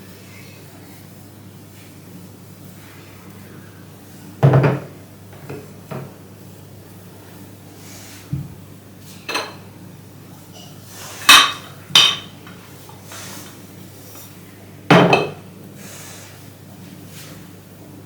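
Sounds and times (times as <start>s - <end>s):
dishes clattering: 9.3s - 9.6s, 10.6s - 12.4s, 14.9s - 15.4s.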